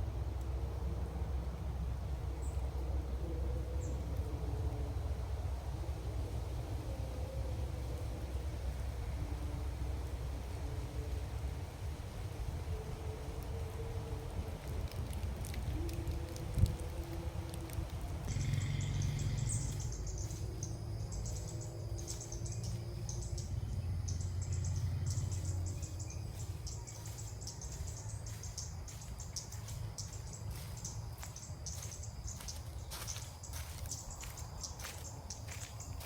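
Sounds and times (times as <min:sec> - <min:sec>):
low rumble: 0:12.8 - 0:36.0
birds chirping and calling: 0:18.3 - 0:35.7.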